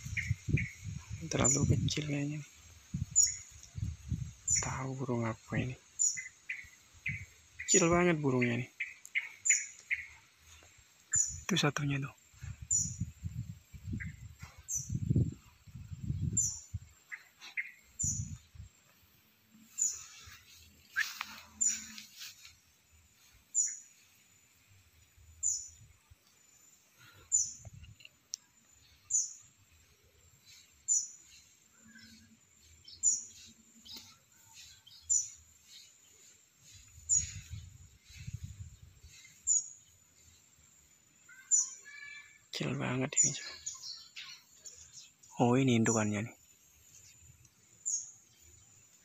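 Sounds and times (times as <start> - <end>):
bird chirping high-pitched: 0.0 - 2.3, 4.4 - 10.2, 36.7 - 39.9, 41.3 - 46.3.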